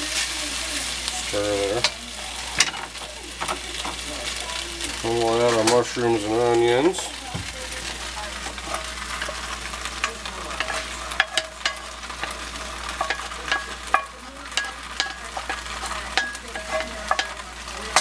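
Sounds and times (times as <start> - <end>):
mushrooms and onions sizzling: 0.0 - 18.0
wooden spatula scraping cast iron: 5.0 - 18.0.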